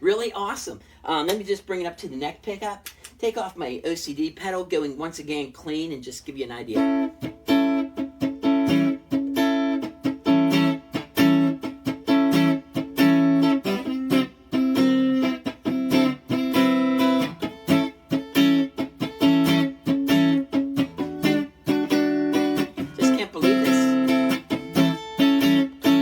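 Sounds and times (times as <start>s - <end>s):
clean electric guitar chords: 6.8s - 26.0s.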